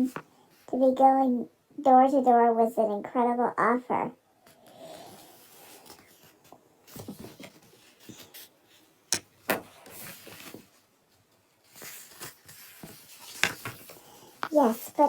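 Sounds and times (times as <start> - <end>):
objects rustling: 5.0 - 15.0.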